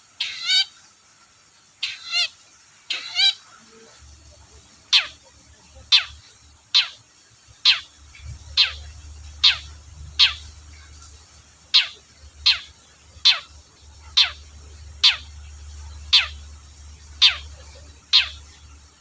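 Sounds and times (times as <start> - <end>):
faint low hum: 2.8 - 19.0
bird sharp downward calls: 7.6 - 10.9, 11.7 - 18.6.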